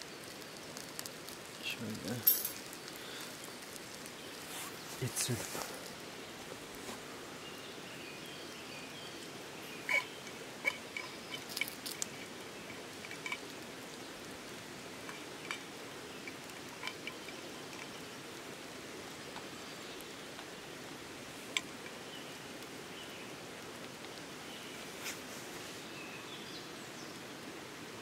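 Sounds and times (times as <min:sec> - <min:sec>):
rain pattering: 0:00.0 - 0:25.0, 0:26.4 - 0:28.0
sharp drip ticks: 0:09.9 - 0:18.4.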